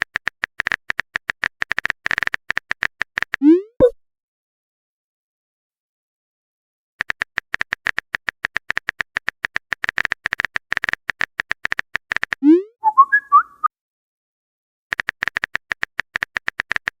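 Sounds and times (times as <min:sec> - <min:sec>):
phone keyboard typing clicks: 0:00.0 - 0:03.4, 0:07.0 - 0:12.5, 0:14.9 - 0:17.0.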